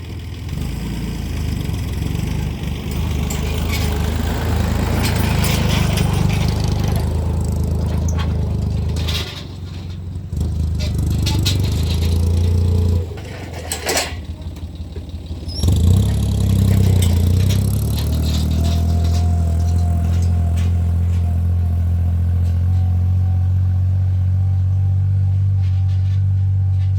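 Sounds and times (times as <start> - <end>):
tractor engine running: 0.0 - 26.9
rattling clicks: 10.7 - 23.0.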